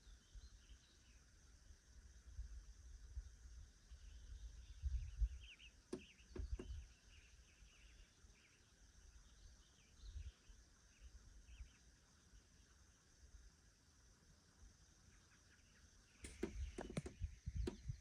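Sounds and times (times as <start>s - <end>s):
small birds chirping: 3.8s - 13.1s, 14.8s - 18.0s
sharp clicks: 16.2s - 17.9s.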